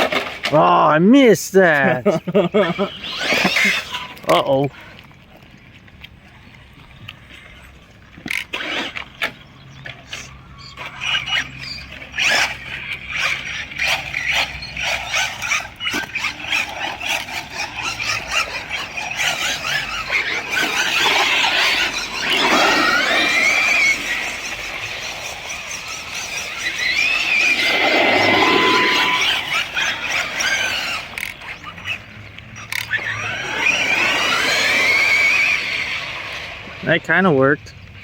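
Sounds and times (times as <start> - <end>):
rc car motor whine: 0.0 - 0.8, 1.6 - 4.7, 8.2 - 38.0
tyre squeals: 2.0 - 4.8, 10.1 - 36.6.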